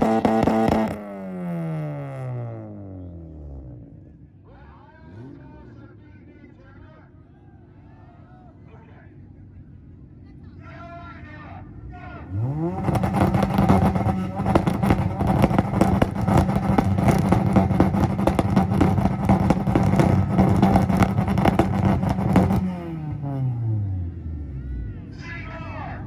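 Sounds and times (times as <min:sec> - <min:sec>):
exhaust pops and bangs: 0:00.0 - 0:01.2, 0:12.5 - 0:23.3
car engine revving on limiter: 0:00.0 - 0:04.0, 0:05.0 - 0:05.8, 0:11.8 - 0:24.6.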